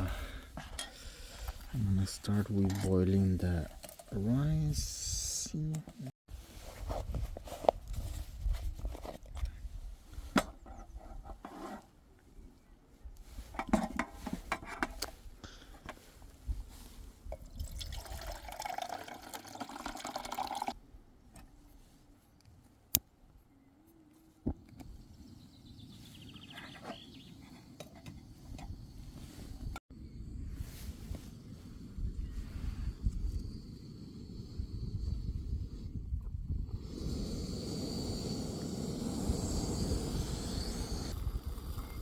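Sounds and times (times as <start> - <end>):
water poured into pot: 17.4 - 20.8.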